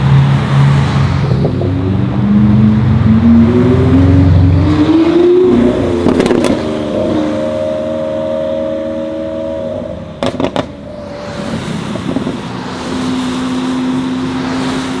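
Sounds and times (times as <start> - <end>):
high engine note: 0.0 - 14.6
sharp exhaust pops: 6.0 - 7.0, 10.2 - 13.3.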